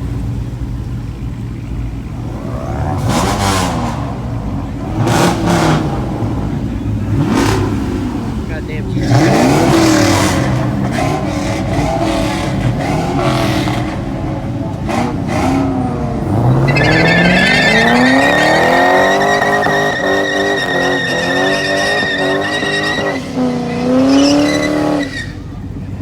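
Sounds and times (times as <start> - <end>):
car engine revving hard: 0.9 - 26.0
tyres squealing: 2.3 - 25.7.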